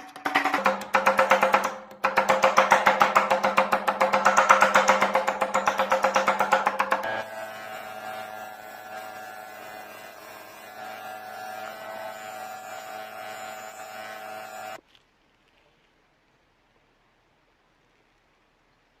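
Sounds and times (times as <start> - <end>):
small motor humming: 0.4 - 14.8.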